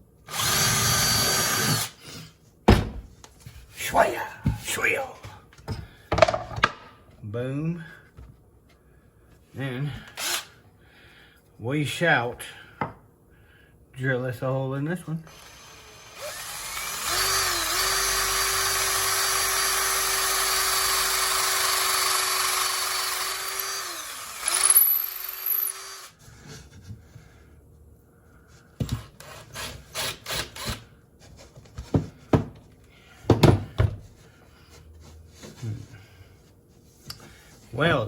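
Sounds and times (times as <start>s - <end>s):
electric drill boring: 0.3s - 2.0s, 10.2s - 10.5s, 15.3s - 26.2s, 29.6s - 30.8s.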